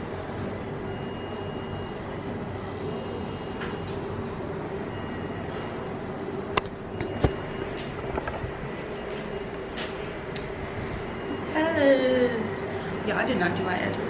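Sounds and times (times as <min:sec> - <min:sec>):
construction machinery hum: 0:02.0 - 0:13.0
sharp clicks: 0:06.6 - 0:08.4.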